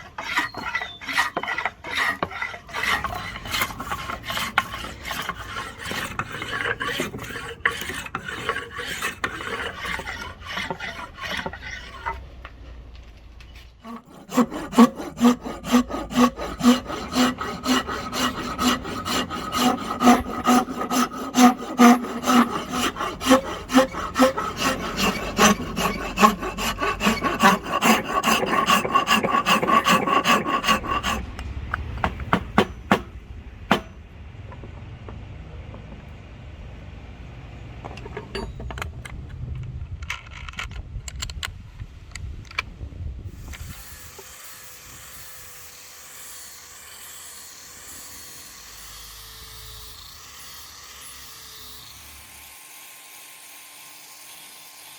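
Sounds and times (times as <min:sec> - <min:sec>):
rasp scraping wooden handle: 0:00.0 - 0:12.2, 0:13.8 - 0:33.1, 0:33.7 - 0:34.0.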